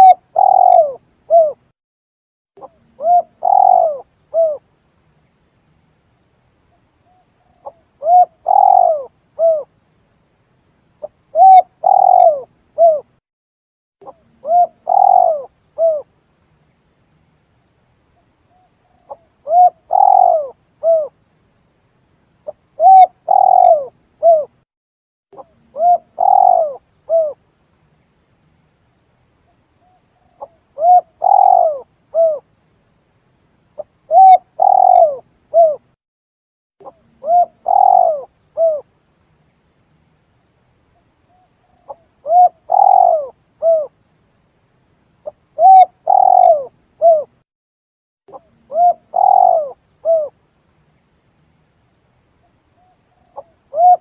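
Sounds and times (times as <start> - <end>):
dove cooing: 0.0 - 1.6, 2.6 - 4.6, 7.5 - 9.7, 11.3 - 13.1, 14.0 - 16.1, 19.0 - 21.2, 22.5 - 24.6, 25.4 - 27.4, 30.2 - 32.4, 34.1 - 35.9, 36.8 - 38.9, 41.3 - 43.9, 45.6 - 47.3, 48.3 - 50.4, 52.8 - 54.0.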